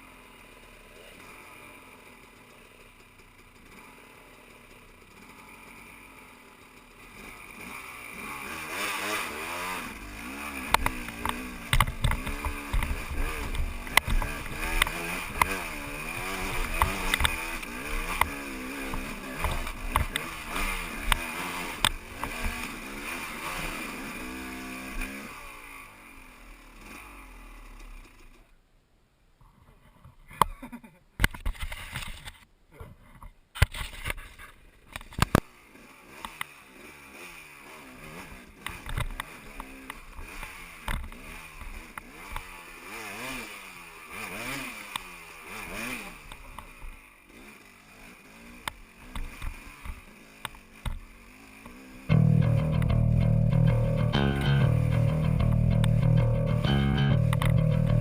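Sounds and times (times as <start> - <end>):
dirt bike engine revving: 3.6 - 28.3, 35.6 - 58.0
clicks: 16.5 - 20.3, 52.1 - 58.0.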